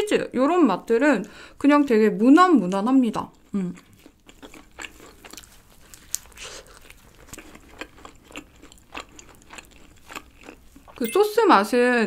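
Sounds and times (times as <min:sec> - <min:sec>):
crisp chewing crunches: 0:03.2 - 0:11.0.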